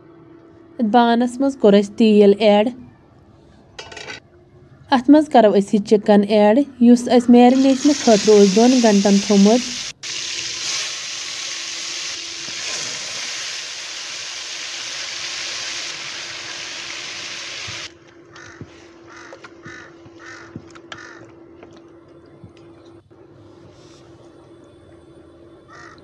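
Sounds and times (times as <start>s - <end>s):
chicken frying in hot oil: 7.5s - 17.9s
low steady hum: 17.8s - 26.0s
repeated bird calls: 18.3s - 21.4s.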